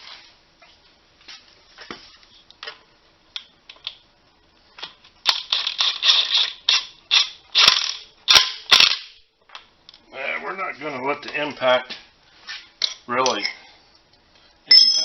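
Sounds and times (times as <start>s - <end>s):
metal tools clinking: 14.7s - 15.0s.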